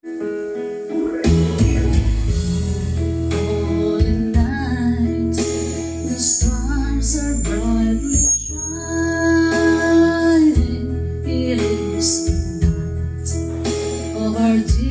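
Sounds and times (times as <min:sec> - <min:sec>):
wavering melody line: 0:00.7 - 0:05.1
carol intro with bass and chords: 0:00.8 - 0:14.9.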